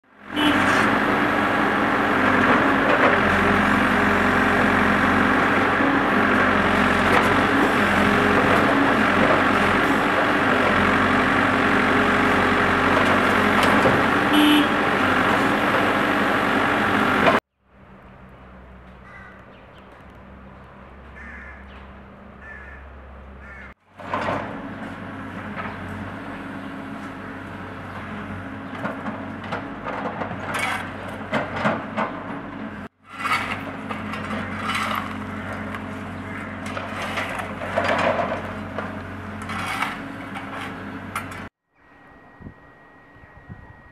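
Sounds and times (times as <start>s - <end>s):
engine running: 0.0s - 43.9s
street noise: 0.0s - 43.9s
heavy machinery running: 0.2s - 17.4s.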